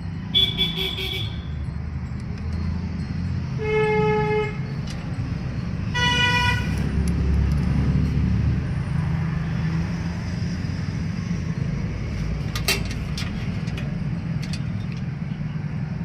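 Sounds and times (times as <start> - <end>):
engine rumbling: 0.0 - 16.0
vehicle horn toots: 0.3 - 1.5, 5.9 - 6.8.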